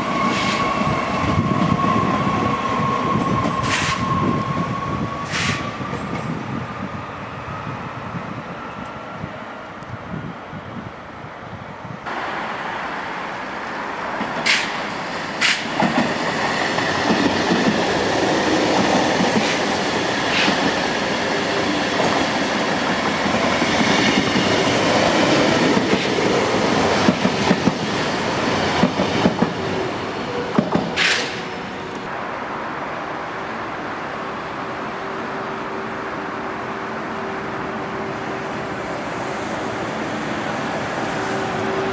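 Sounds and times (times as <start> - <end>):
train hum: 0.0 - 41.9
train wheels clattering: 14.2 - 18.0.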